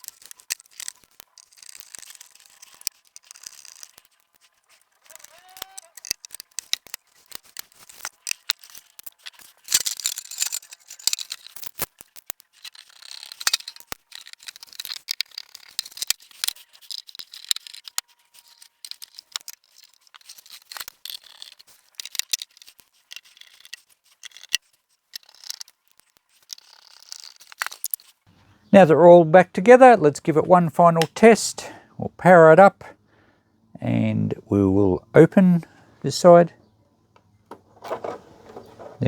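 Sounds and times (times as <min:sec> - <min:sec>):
plastic and metal parts clicking: 0:00.0 - 0:28.2, 0:37.2 - 0:39.0.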